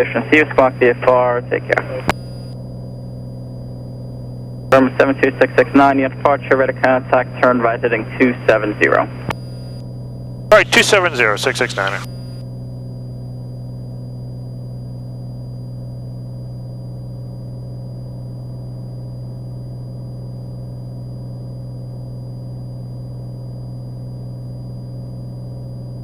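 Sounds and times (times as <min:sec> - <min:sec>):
airplane engine and propeller drone: 0:00.0 - 0:09.6, 0:10.4 - 0:12.3.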